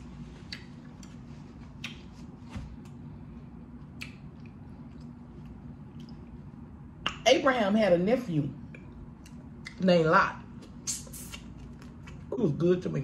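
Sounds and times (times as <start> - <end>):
steady low hum: 0.0 - 13.0
chewing mouth clicks and smacks: 0.4 - 3.0, 3.8 - 7.2.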